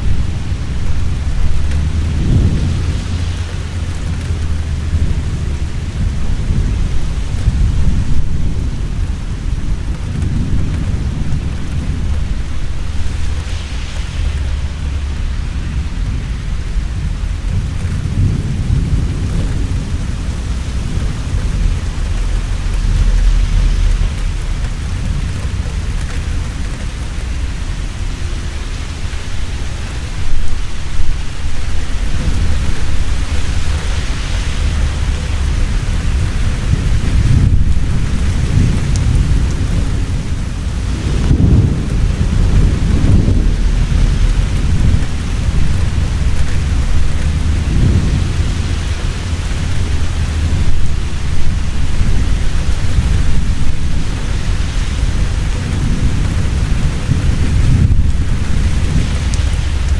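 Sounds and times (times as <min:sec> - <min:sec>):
heavy rain falling: 0:00.0 - 0:59.9
rolling thunder: 0:00.0 - 0:59.9
sharp thunder crack: 0:29.0 - 0:59.9.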